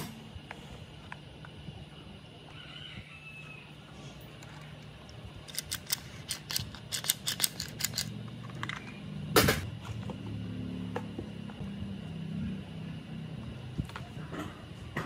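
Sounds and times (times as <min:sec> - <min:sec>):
sharp clicks of small parts: 0:05.0 - 0:08.8.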